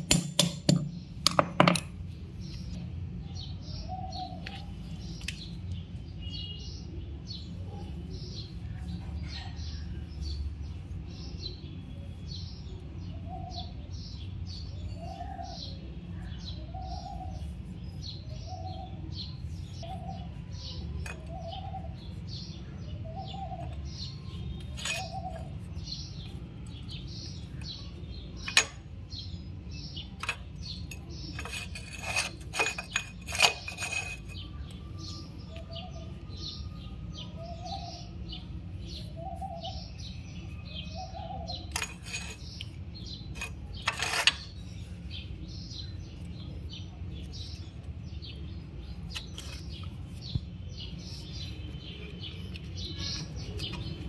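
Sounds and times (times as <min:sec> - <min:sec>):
sharp clicks and knocks: 0:00.0 - 0:02.0
small birds chirping: 0:00.0 - 0:54.0.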